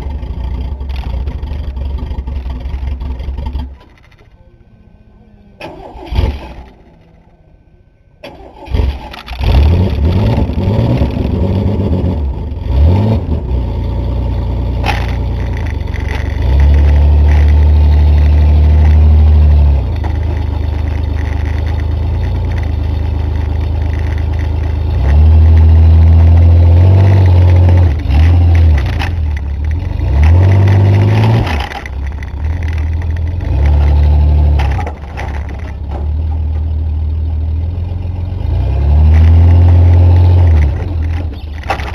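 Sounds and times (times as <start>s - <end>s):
pickup truck engine revving: 8.3s - 36.6s.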